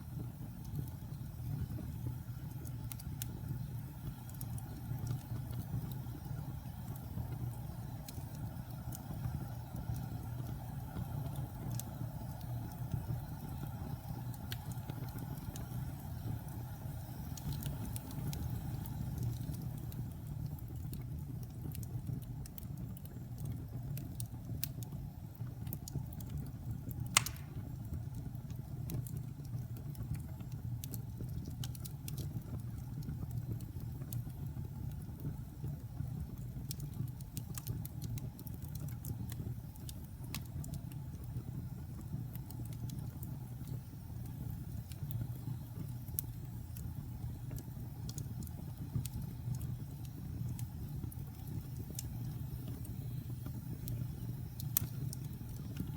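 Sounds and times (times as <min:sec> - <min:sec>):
fire crackling: 0:00.0 - 0:55.9
wood fire roaring: 0:00.0 - 0:55.9
fire sharp pop: 0:27.1 - 0:27.8.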